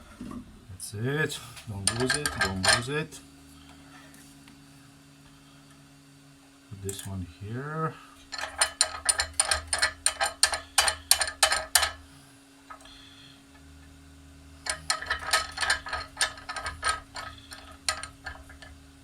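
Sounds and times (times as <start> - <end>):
steady low hum: 0.0 - 19.0
rapid mechanical clicking: 1.8 - 2.9, 8.3 - 12.1, 14.6 - 19.0.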